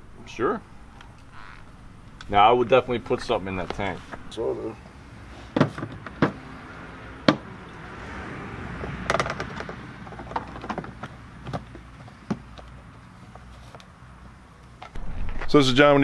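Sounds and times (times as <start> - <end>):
faint steady background: 0.0 - 16.0
sharp knocks and clatters: 5.5 - 6.5, 7.2 - 7.5, 8.9 - 12.7.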